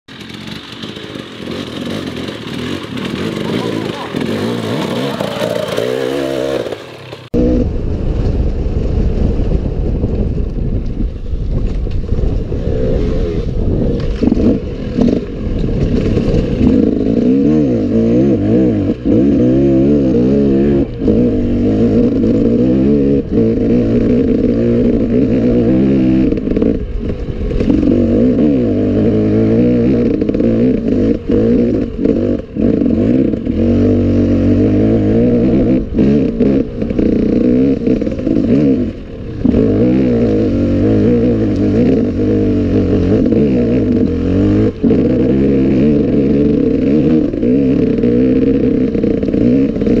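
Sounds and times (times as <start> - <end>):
rattles and clatter: 0.1 - 7.3, 13.9 - 17.3
motorcycle engine revving: 0.1 - 50.0.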